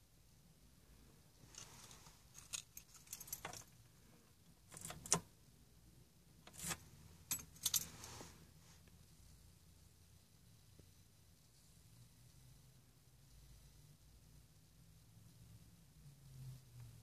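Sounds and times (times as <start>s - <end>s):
keys jangling on key ring: 1.5s - 3.8s, 4.7s - 5.2s, 6.5s - 8.1s.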